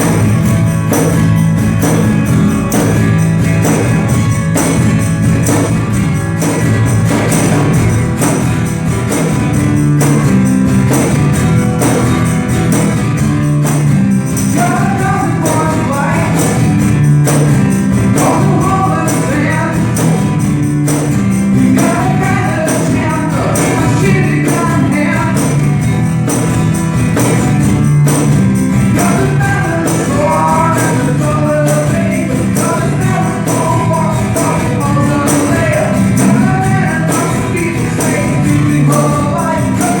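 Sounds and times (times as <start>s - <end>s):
percussion beat with bass: 0.0s - 40.0s
people singing: 14.4s - 16.7s, 18.0s - 20.3s, 21.6s - 25.7s, 28.8s - 40.0s.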